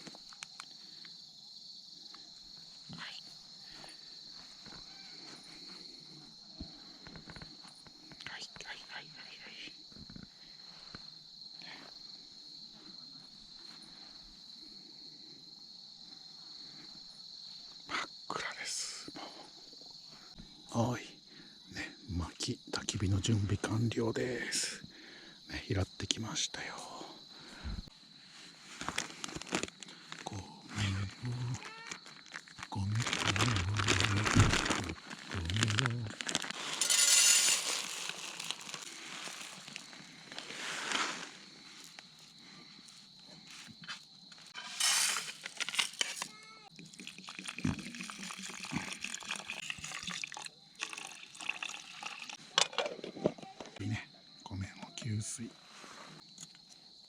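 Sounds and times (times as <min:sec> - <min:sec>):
crickets chirping: 0:00.0 - 0:57.0
material crinkling and rustling: 0:31.9 - 0:41.1, 0:44.4 - 0:46.4.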